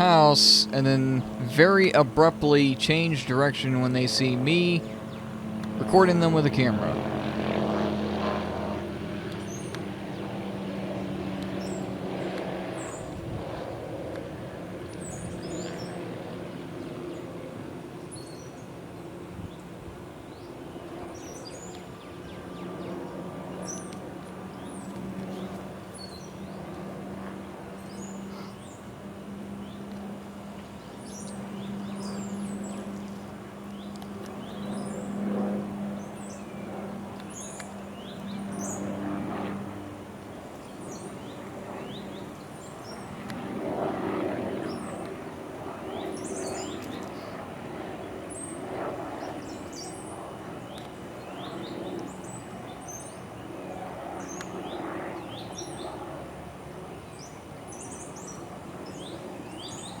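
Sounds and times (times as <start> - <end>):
birds chirping: 0.0 - 7.5, 30.6 - 39.5, 45.8 - 47.4
broad outdoor noise: 0.0 - 60.0
helicopter drone: 0.0 - 60.0.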